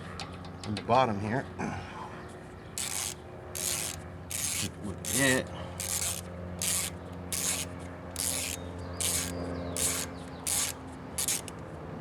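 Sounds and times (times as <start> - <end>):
ratchet wrench clicking: 2.8 - 11.6.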